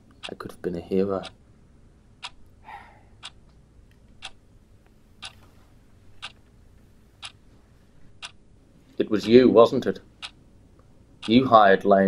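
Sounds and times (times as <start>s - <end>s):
clock ticking: 0.0s - 0.5s, 1.2s - 1.4s, 2.2s - 2.5s, 3.2s - 3.5s, 4.2s - 4.4s, 8.2s - 8.4s, 9.2s - 10.4s, 11.2s - 11.9s.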